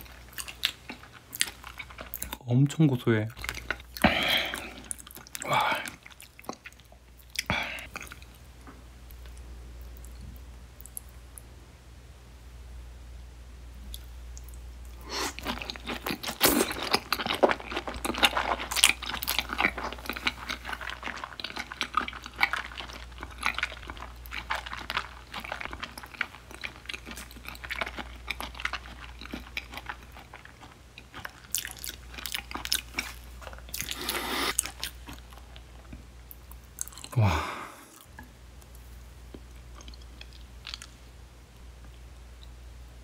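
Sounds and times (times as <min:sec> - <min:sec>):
mouth chewing clicks and smacks: 0:13.9 - 0:37.2, 0:39.3 - 0:41.0.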